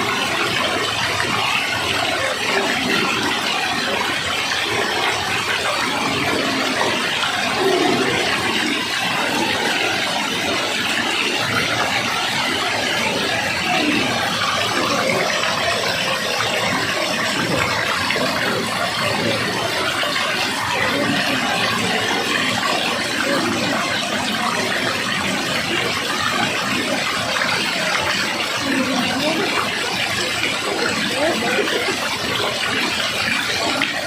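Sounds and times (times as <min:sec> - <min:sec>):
running water: 0:00.0 - 0:34.0.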